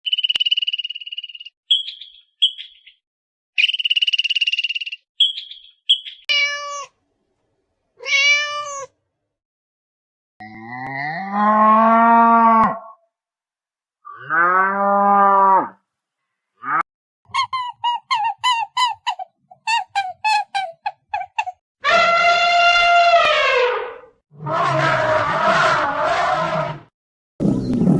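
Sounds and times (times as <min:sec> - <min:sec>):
cat meowing: 0:06.3 - 0:06.9, 0:08.0 - 0:08.9.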